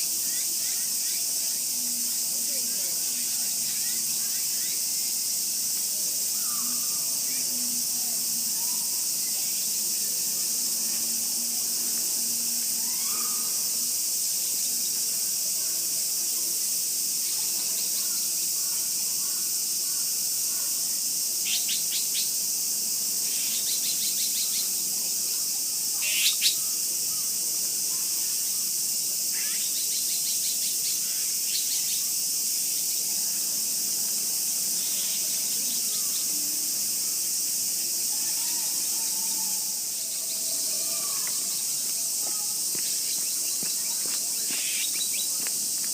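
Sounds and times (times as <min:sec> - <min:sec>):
high-pitched insect chorus: 0:00.0 - 0:45.9
small birds chirping: 0:23.2 - 0:24.8, 0:40.0 - 0:45.9.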